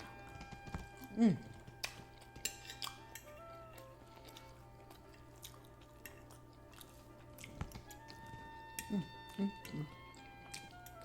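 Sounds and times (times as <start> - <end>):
faint background music: 0.0 - 11.0
cutlery clicks: 1.8 - 3.4.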